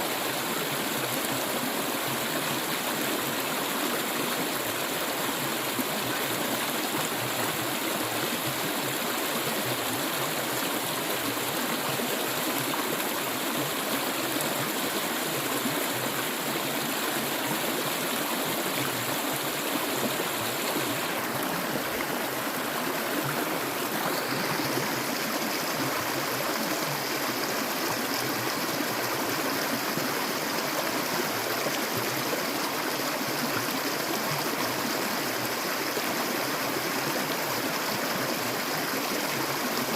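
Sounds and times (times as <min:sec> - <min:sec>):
water flowing: 0:00.0 - 0:35.6.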